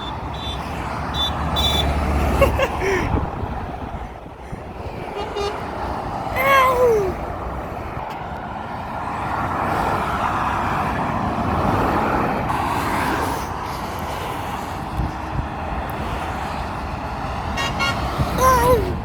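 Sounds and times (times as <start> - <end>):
road traffic with trucks: 0.0 - 19.0.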